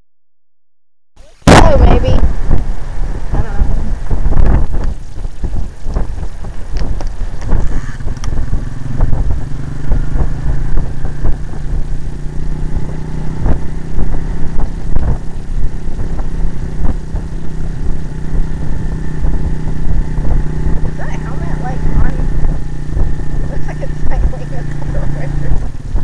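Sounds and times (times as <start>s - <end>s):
small motorbike engine running: 6.0s - 26.0s.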